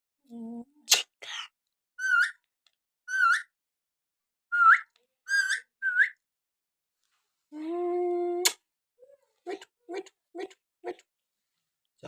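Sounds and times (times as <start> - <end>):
parrot whistling: 2.0 - 2.4, 3.1 - 3.6, 4.5 - 6.2.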